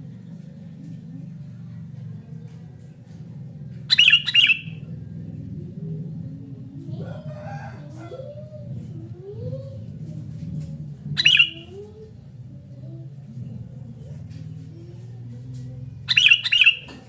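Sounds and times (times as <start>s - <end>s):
bird giving sharp calls: 3.9s - 4.9s, 11.2s - 11.9s, 16.1s - 16.9s
lower wavering bird call: 3.9s - 4.9s, 11.2s - 12.1s.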